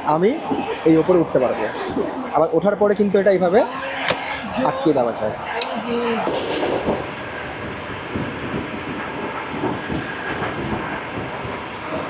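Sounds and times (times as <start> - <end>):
train wheels rumbling: 5.6 - 12.0.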